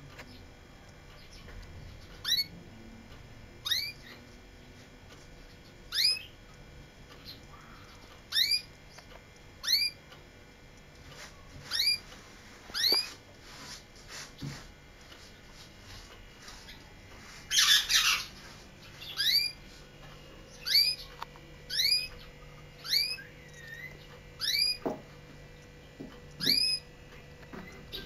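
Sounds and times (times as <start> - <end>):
canary call notes: 2.2 - 2.6, 3.6 - 4.2, 5.9 - 6.3, 7.2 - 8.7, 9.6 - 10.0, 11.6 - 12.1, 12.7 - 13.2, 17.5 - 19.6, 20.5 - 24.8, 26.4 - 26.8.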